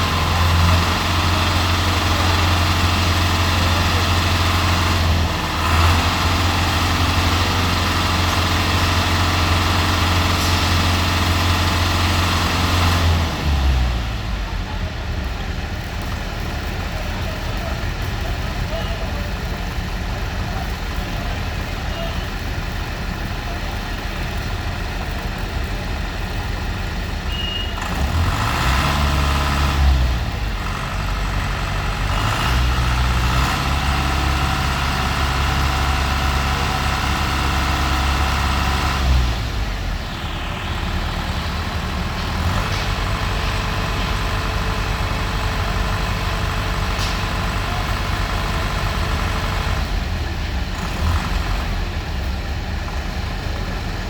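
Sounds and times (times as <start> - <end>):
diesel truck engine revving: 0.0 - 54.0
traffic rumble: 0.0 - 54.0.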